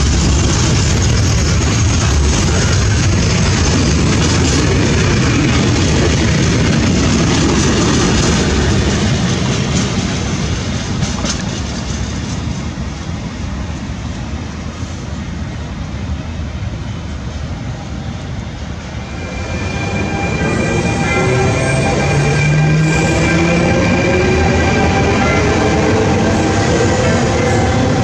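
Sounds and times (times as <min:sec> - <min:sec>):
freight wagons rolling on rails: 0:00.0 - 0:13.5.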